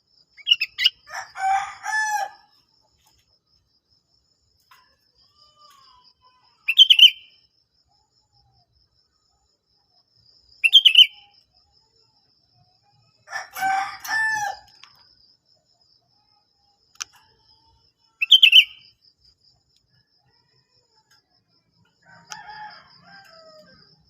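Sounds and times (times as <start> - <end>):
rooster crowing: 1.1 - 2.5, 13.2 - 14.8, 22.0 - 24.0.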